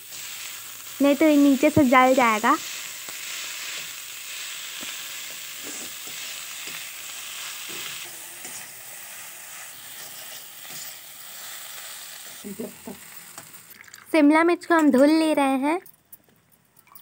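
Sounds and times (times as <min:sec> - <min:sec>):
food sizzling in a pan: 0:00.0 - 0:14.2
metal spatula scraping a pan: 0:02.6 - 0:11.1.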